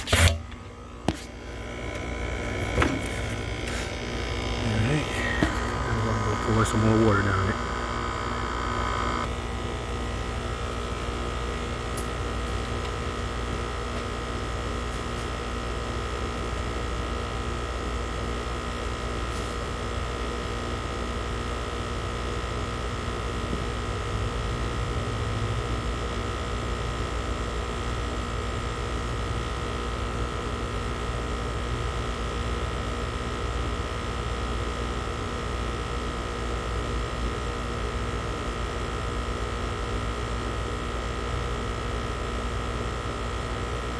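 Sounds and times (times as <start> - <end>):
air conditioning hum: 0.0 - 15.5.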